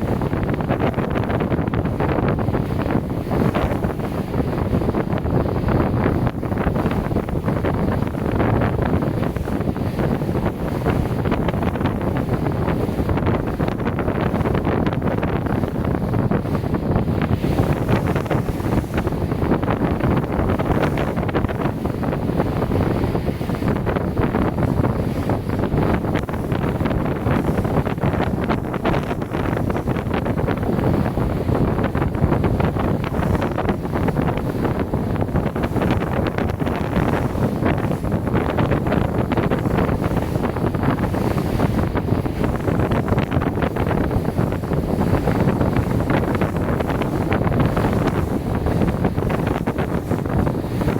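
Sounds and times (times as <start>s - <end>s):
low rumble of ship and water: 0.0s - 50.9s
wind buffeting microphone: 0.0s - 50.9s.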